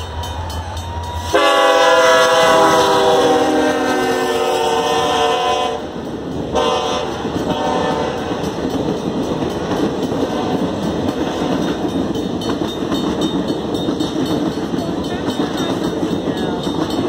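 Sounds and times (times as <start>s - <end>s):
train cars rumbling on rails: 0.0s - 17.0s
diesel locomotive horn: 1.2s - 8.5s.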